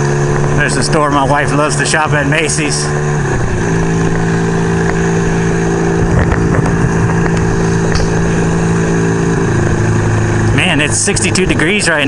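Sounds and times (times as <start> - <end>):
motorcycle engine cruising: 0.0 - 12.0
wind noise on microphone: 5.3 - 8.6.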